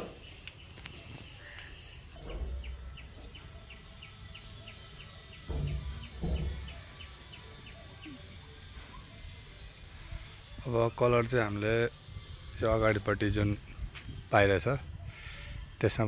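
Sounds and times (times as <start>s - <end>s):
bird chirping repeated note: 0.0s - 8.2s
outdoor background noise: 0.0s - 16.0s.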